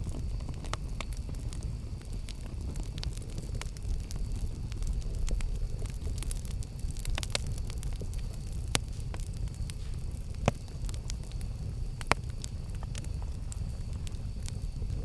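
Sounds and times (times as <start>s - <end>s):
campfire flames rumbling: 0.0s - 15.0s
wood crackling and popping: 0.0s - 15.0s.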